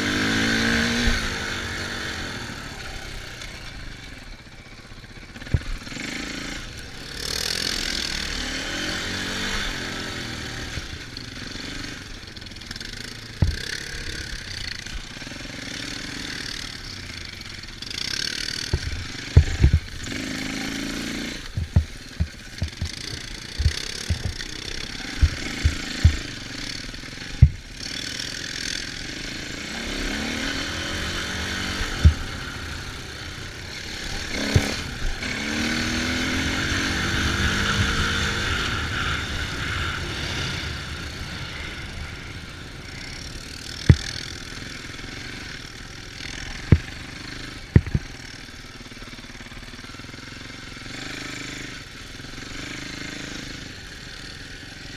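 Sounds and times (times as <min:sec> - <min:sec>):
off-road engines revving: 0:00.0 - 0:54.9
sharp low thumps: 0:13.4 - 0:13.6, 0:18.7 - 0:19.9, 0:21.5 - 0:24.5, 0:25.1 - 0:26.3, 0:27.4 - 0:27.6, 0:32.0 - 0:32.4, 0:43.8 - 0:44.2, 0:47.7 - 0:48.0.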